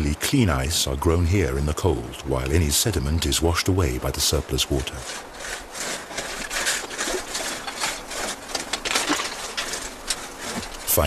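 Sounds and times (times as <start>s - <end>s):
ice clicks and crackles: 4.8s - 11.0s.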